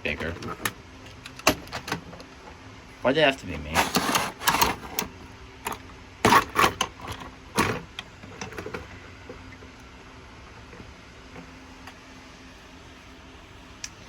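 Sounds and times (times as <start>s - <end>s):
plastic toy trains clattering: 3.7s - 5.1s.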